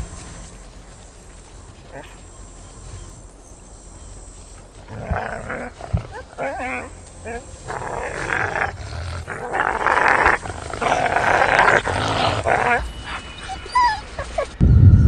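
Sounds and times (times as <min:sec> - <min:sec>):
wolves snarling and growling: 0:04.7 - 0:14.6.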